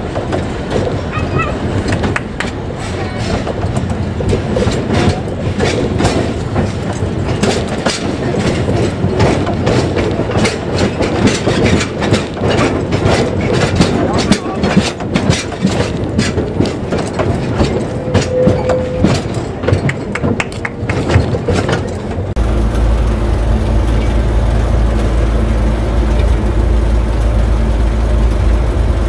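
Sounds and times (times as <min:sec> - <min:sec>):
train wheels clattering over joints: 0:00.0 - 0:22.5
locomotive engine drone: 0:00.0 - 0:29.0.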